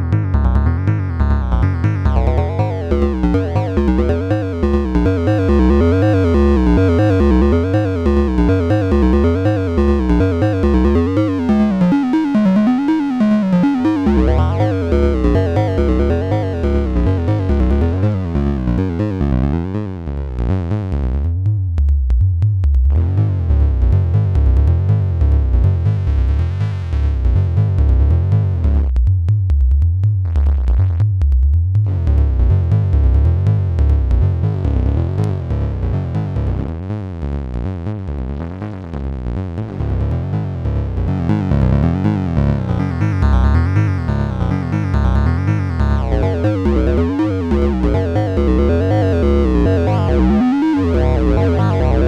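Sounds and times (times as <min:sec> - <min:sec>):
drum machine ticks: 0:00.0 - 0:19.6, 0:21.2 - 0:26.0, 0:40.7 - 0:52.0
synthesizer bass line: 0:00.0 - 0:28.1, 0:37.5 - 0:52.0.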